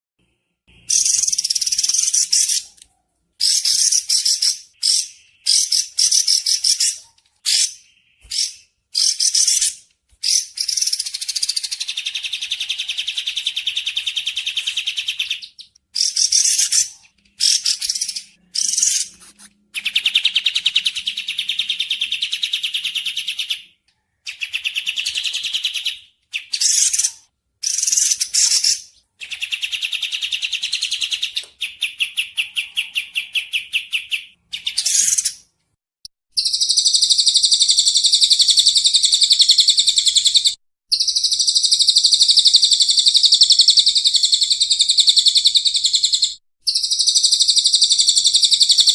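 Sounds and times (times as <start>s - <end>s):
bird trilling chatter: 0.9s - 2.8s.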